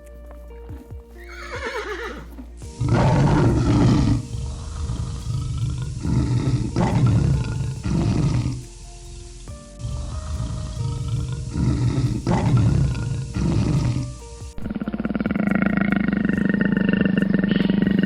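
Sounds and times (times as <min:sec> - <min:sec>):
background music: 0:00.0 - 0:18.0
horse whinnying: 0:01.2 - 0:04.2
large animal growling: 0:02.8 - 0:18.0.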